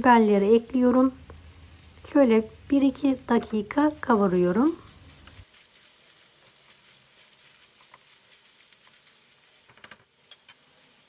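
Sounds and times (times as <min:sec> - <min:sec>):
food sizzling in a pan: 0:00.0 - 0:11.0
wooden spoon clicking on pan: 0:09.7 - 0:10.6.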